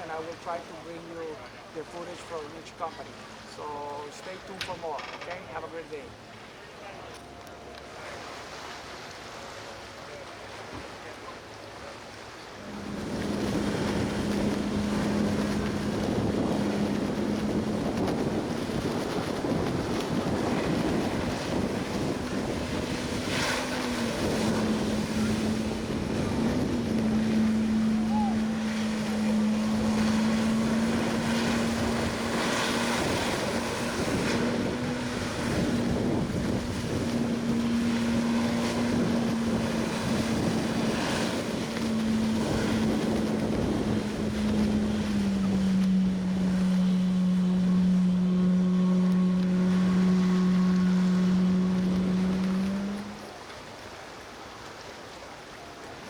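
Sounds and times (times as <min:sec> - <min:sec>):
boat engine running: 0:00.0 - 0:56.0
wind on microphone: 0:12.6 - 0:53.4.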